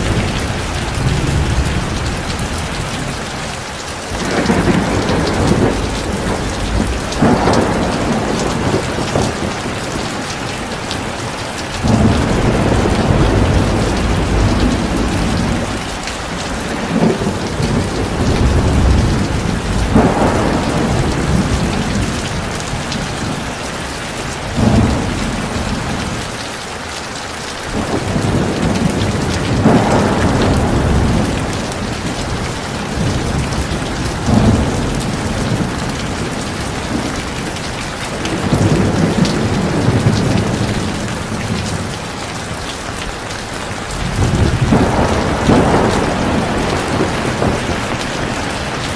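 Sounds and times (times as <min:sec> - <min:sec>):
thunder rumbling and cracking: 0:00.0 - 0:26.4, 0:27.6 - 0:48.9
heavy rain pouring: 0:00.0 - 0:48.9.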